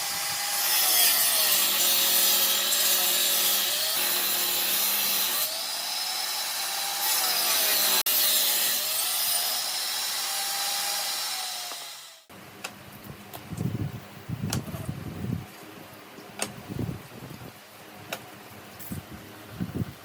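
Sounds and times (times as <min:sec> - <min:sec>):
power tool cutting wood: 0:00.0 - 0:12.3.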